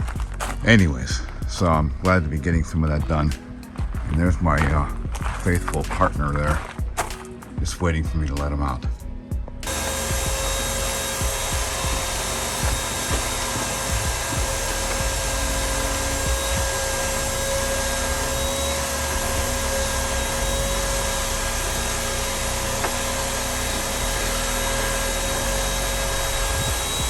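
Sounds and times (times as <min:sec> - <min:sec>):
vacuum cleaner running: 0:09.6 - 0:27.0.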